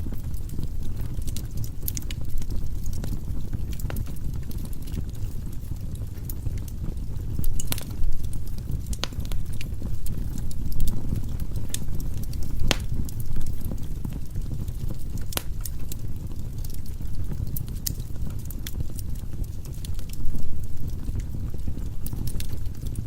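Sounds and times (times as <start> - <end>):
fire flames burning: 0.0 - 23.0
wood crackling and popping: 0.0 - 23.0.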